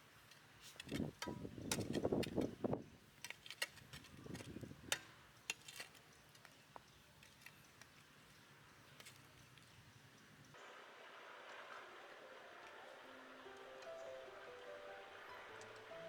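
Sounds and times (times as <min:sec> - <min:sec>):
rustling and scraping: 0:00.2 - 0:09.9.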